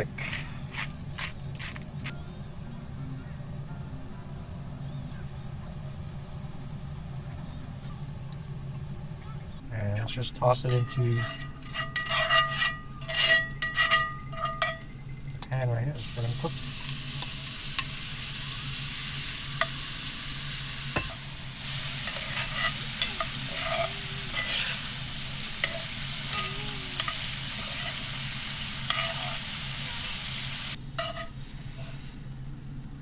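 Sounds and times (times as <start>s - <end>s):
shrimp sizzling in a pan: 16.0s - 33.0s.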